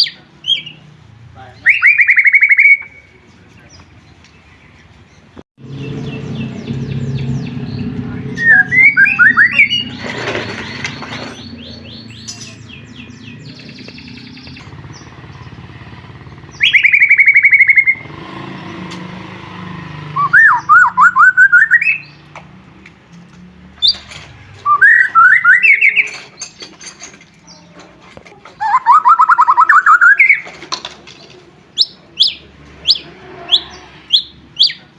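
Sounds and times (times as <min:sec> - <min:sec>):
bird chirps: 0:00.0 - 0:22.3, 0:23.8 - 0:27.8, 0:28.5 - 0:30.6, 0:31.7 - 0:34.9
bird singing whistled notes: 0:01.6 - 0:03.9, 0:05.7 - 0:18.2, 0:20.1 - 0:22.2, 0:24.6 - 0:26.6, 0:28.6 - 0:30.5.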